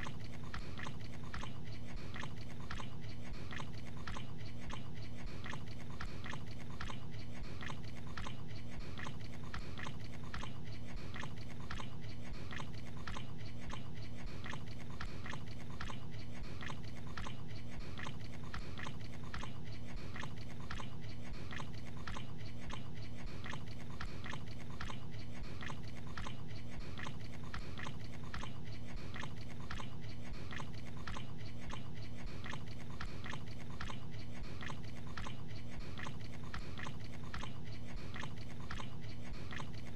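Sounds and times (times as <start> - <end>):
man chewing food: 0.0 - 39.9
steady low hum: 0.0 - 39.9.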